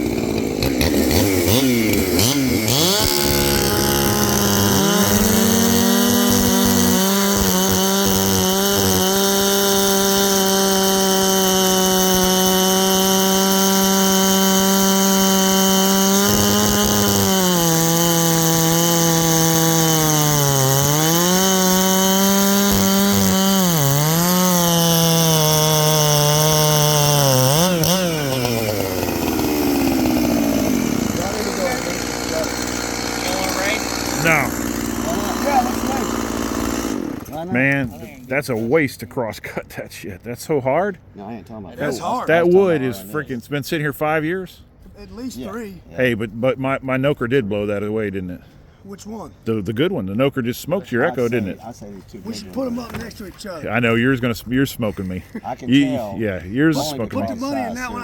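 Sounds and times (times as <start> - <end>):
chainsaw cutting wood: 0.0 - 38.3, 50.8 - 58.0.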